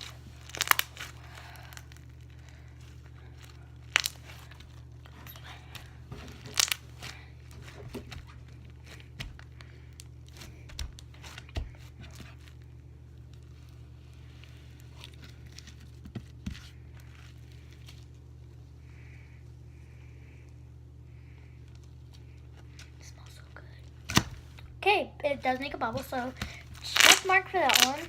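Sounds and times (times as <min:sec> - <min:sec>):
slime crackles and sticky pops: 0:00.0 - 0:05.2, 0:05.8 - 0:07.2, 0:26.4 - 0:28.0
steady low hum: 0:00.0 - 0:28.0.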